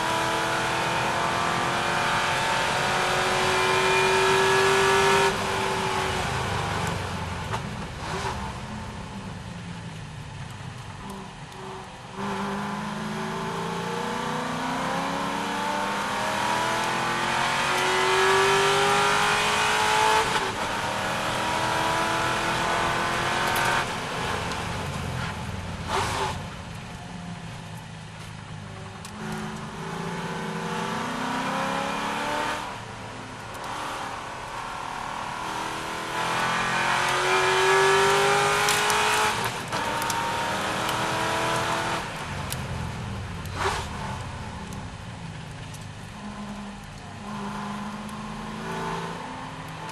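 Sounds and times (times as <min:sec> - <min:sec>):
racing car engine revving: 0:00.0 - 0:06.9, 0:12.2 - 0:26.4, 0:29.0 - 0:32.9, 0:33.5 - 0:42.6, 0:45.6 - 0:49.9.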